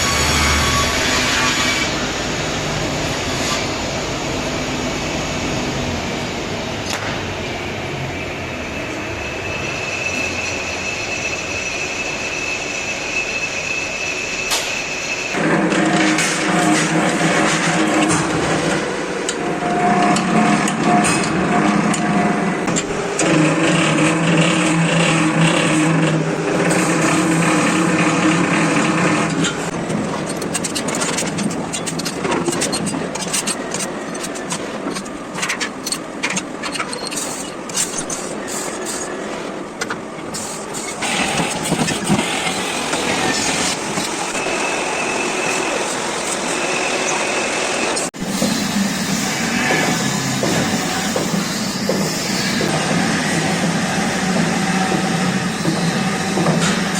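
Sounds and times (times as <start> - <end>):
sawing machine humming: 14.9 - 36.6, 40.5 - 56.9.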